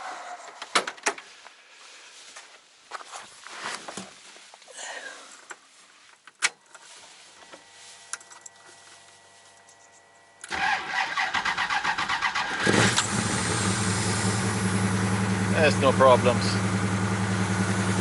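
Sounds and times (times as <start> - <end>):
engine starting: 10.4 - 13.6
starter motor cranking: 10.4 - 14.4.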